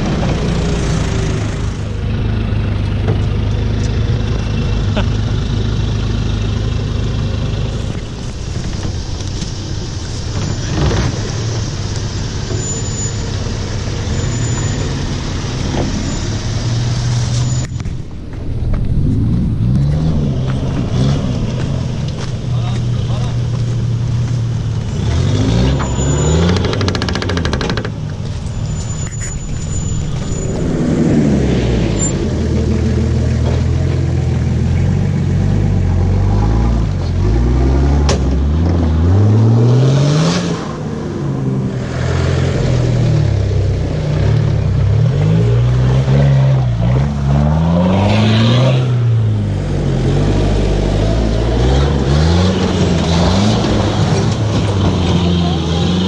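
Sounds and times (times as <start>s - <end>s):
vehicle engine revving: 18.4s - 56.0s.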